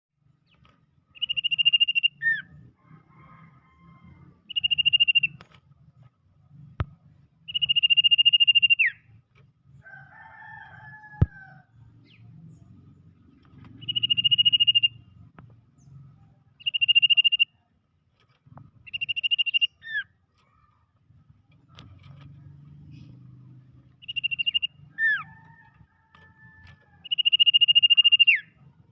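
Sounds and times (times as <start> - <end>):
buzzy trilled bird call: 1.2 - 2.5, 13.8 - 15.0, 16.6 - 17.5, 18.9 - 20.2, 24.0 - 25.3, 27.0 - 28.5
sharp clicks: 5.1 - 5.7.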